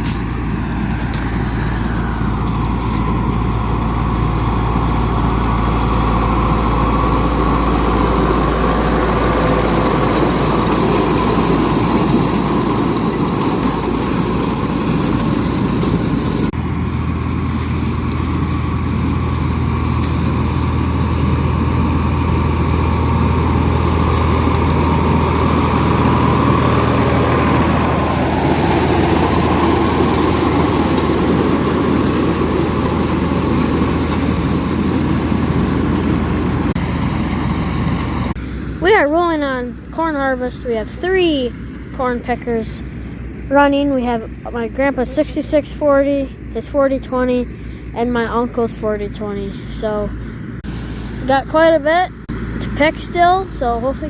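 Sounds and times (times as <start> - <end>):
tractor engines running: 0.0 - 54.0.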